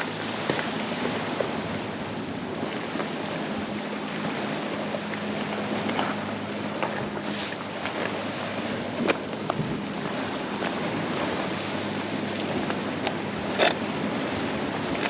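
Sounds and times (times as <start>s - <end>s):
waves on rocky shore: 0.0s - 15.0s
wind buffeting microphone: 0.0s - 15.0s.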